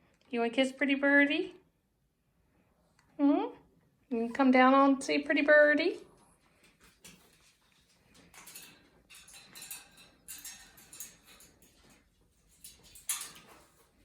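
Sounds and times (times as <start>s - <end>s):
bird claws scratching cage: 6.8s - 14.0s.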